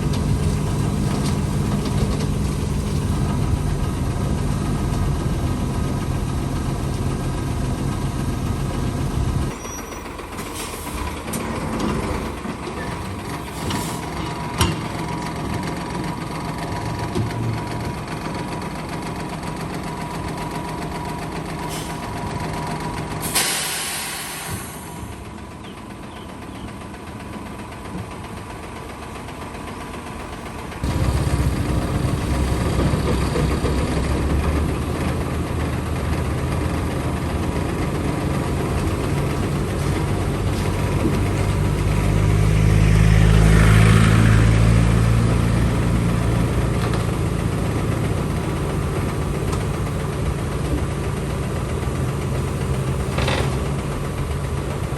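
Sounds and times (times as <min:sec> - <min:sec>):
diesel machinery engine: 0:00.0 - 0:54.9
short loud hiss: 0:23.2 - 0:25.0.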